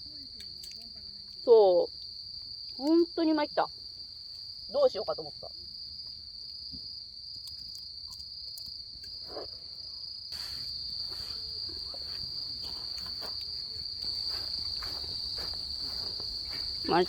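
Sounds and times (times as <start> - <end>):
crickets chirring: 0.0 - 17.0
small clicks and rustles: 0.3 - 1.4.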